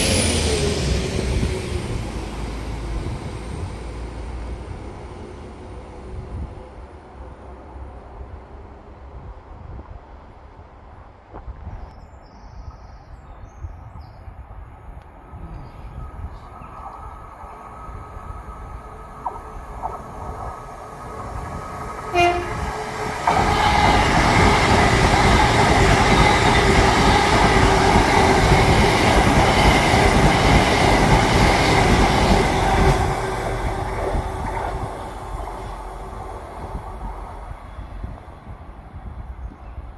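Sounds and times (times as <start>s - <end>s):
train passing close by: 0.0s - 11.3s, 14.2s - 39.9s
train horn toot: 22.1s - 24.6s.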